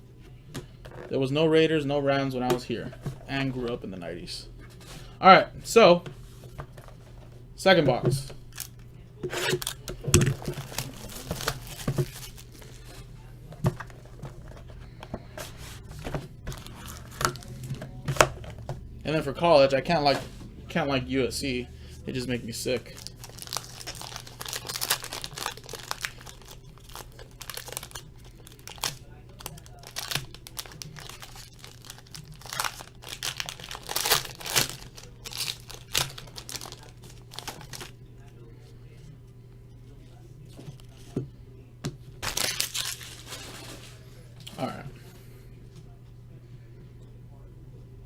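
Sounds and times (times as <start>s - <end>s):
plastic wrap crinkling and tearing: 9.4s - 13.1s, 16.4s - 17.7s, 22.8s - 38.0s, 42.2s - 44.0s.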